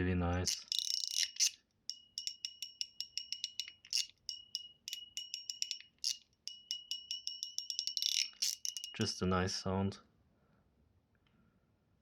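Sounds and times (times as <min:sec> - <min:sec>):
fidget slider clicking: 0:00.4 - 0:09.0.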